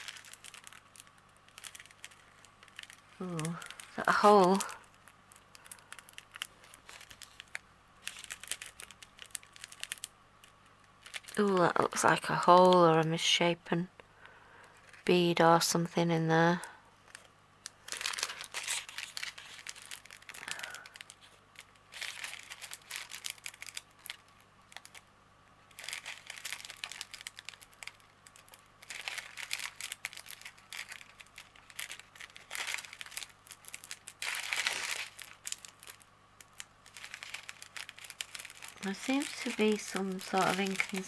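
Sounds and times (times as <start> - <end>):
plastic packets crinkling: 0.0 - 41.0.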